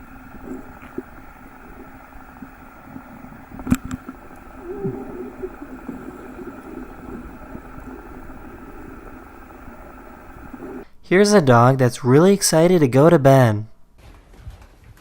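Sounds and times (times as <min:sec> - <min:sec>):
low motor hum: 0:00.0 - 0:10.9.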